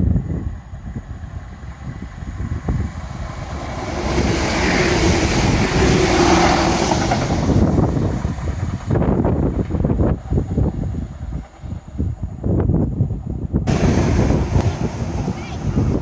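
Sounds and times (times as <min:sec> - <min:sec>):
wind buffeting microphone: 0:00.0 - 0:16.0
vehicle passing: 0:02.5 - 0:08.2, 0:13.7 - 0:16.0.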